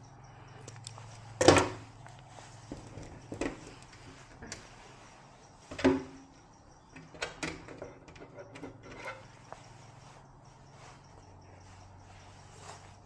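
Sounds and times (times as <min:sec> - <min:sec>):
objects knocking and clattering: 0:01.4 - 0:01.8.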